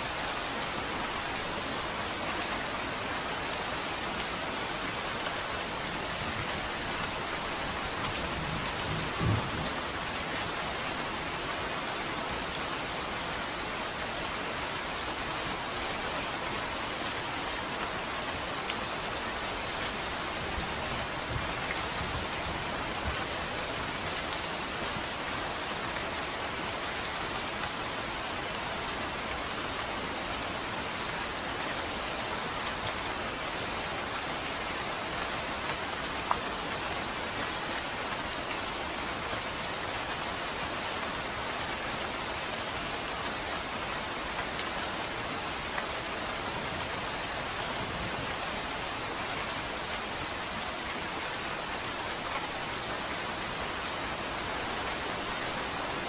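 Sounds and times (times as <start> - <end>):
low rumble of thunder: 8.3 - 9.8.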